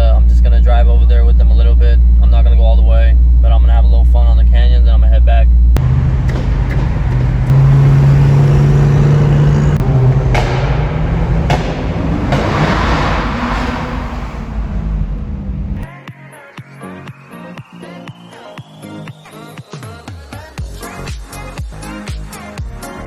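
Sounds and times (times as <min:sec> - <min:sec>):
car engine accelerating: 0:00.0 - 0:15.9
road and wind noise: 0:05.4 - 0:15.9
electronic dance music: 0:16.6 - 0:22.6.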